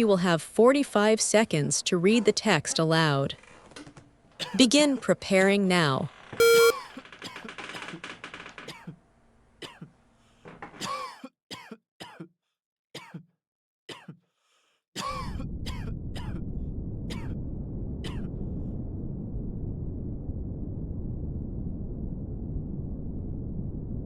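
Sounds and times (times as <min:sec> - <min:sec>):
person coughing: 0:04.4 - 0:04.6, 0:10.8 - 0:12.3, 0:13.0 - 0:13.3, 0:13.9 - 0:14.2, 0:15.0 - 0:16.4, 0:17.1 - 0:17.3, 0:18.1 - 0:18.3
short electronic beep: 0:06.4 - 0:06.8
throat clearing: 0:09.6 - 0:10.0, 0:10.8 - 0:12.3, 0:13.0 - 0:13.3, 0:13.9 - 0:14.2, 0:15.0 - 0:16.4, 0:17.1 - 0:17.4, 0:18.0 - 0:18.3.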